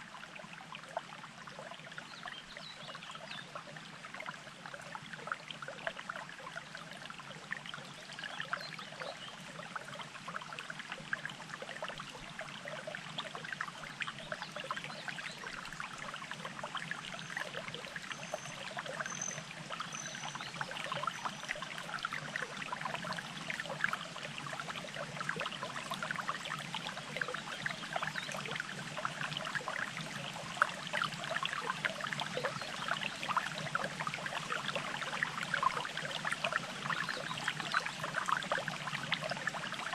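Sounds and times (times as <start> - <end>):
stream water burbling: 0.0 - 39.9.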